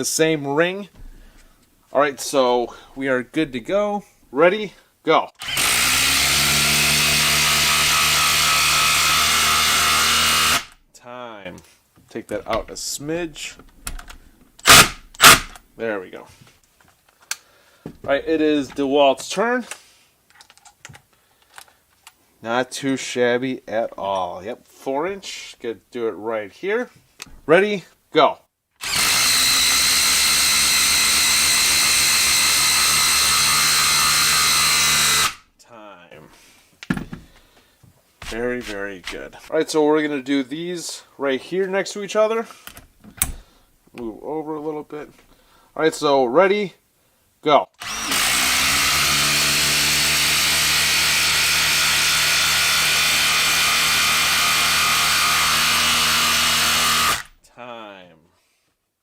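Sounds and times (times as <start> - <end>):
impact driver hammering screw into wood: 5.4 - 10.8, 14.6 - 15.6, 28.8 - 35.4, 47.8 - 57.4
impact driver hammering: 14.6 - 15.6.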